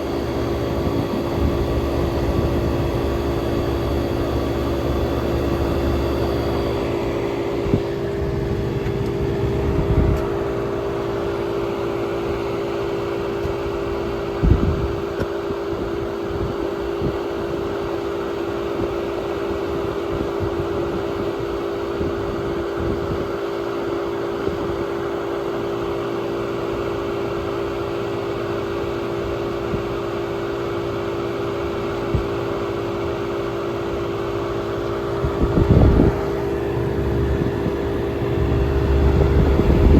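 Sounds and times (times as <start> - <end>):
air conditioner humming: 0.0 - 14.3, 33.8 - 39.9
fan rushing: 0.0 - 21.5, 32.0 - 39.9.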